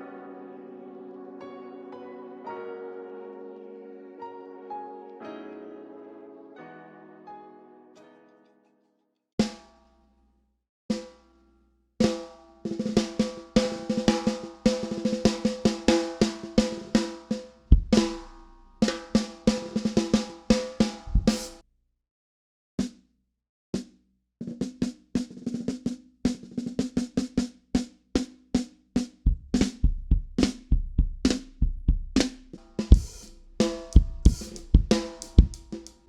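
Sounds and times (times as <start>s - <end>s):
bass drum kicks: 17.7s - 18.2s, 21.0s - 21.6s, 29.3s - 35.7s
snare drum strikes and rolls: 32.2s - 35.8s.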